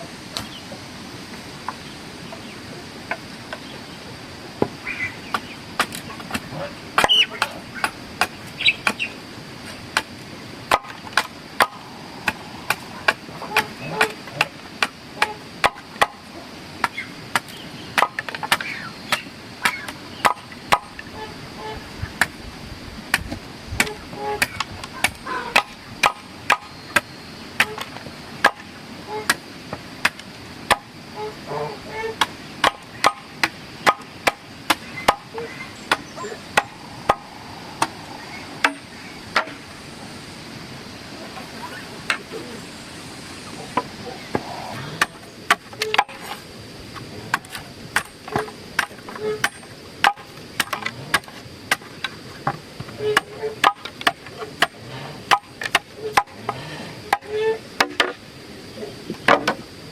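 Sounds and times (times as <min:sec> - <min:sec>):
hand tool striking: 0:32.6 - 0:35.3, 0:38.6 - 0:39.6.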